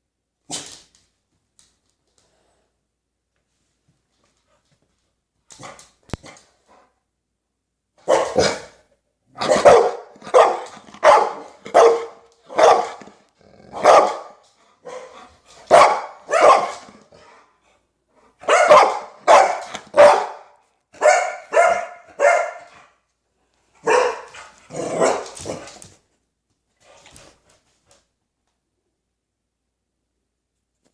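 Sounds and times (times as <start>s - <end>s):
dog barking: 8.0s - 8.8s, 9.4s - 13.1s, 13.7s - 17.4s, 18.4s - 22.9s, 23.8s - 25.6s.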